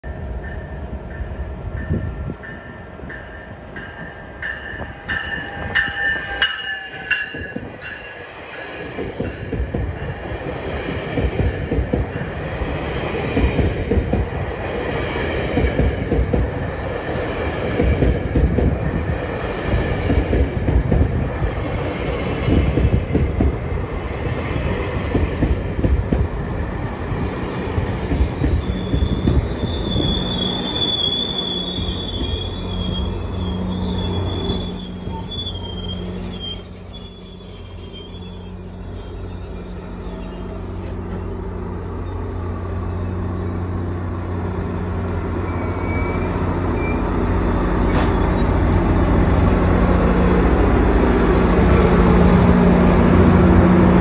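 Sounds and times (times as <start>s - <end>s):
train wheels rumbling on rails: 0.0s - 54.0s
high wheel squeal: 20.9s - 42.3s, 45.4s - 48.8s.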